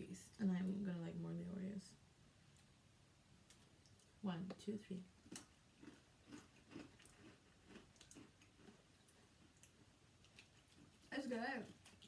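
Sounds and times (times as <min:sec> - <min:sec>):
faint chewing of crunchy snack: 0:05.1 - 0:12.0.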